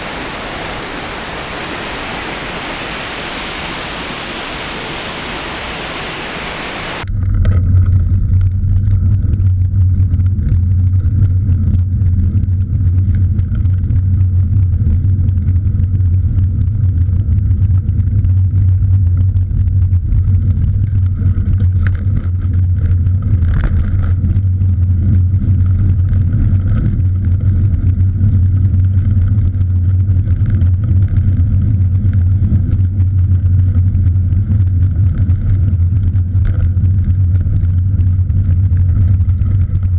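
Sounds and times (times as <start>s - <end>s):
waterfall rushing: 0.0s - 7.0s
bike riding rumble on road: 0.0s - 39.9s
wind: 0.0s - 39.9s.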